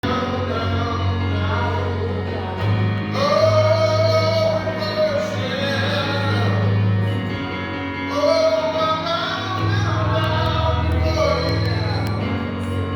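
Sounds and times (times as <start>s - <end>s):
gospel singing over bass: 0.0s - 12.9s.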